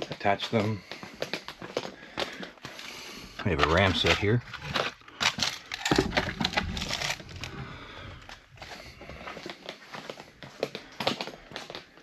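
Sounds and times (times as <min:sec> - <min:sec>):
rustling and crinkling: 0:00.0 - 0:12.0.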